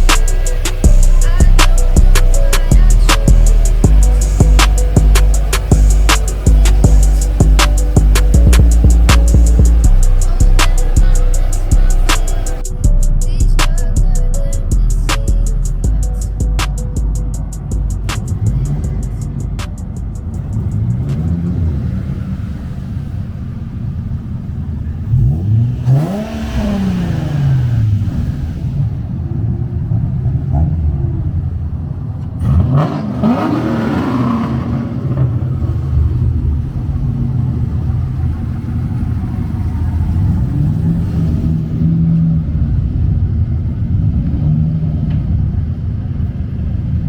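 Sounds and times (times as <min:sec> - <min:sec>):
car engine revving: 0:00.0 - 0:47.0.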